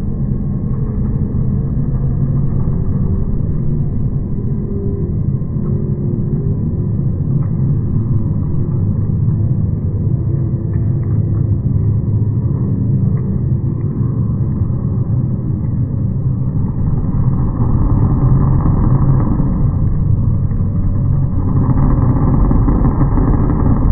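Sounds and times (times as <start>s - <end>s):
truck engine drone: 15.2s - 23.9s.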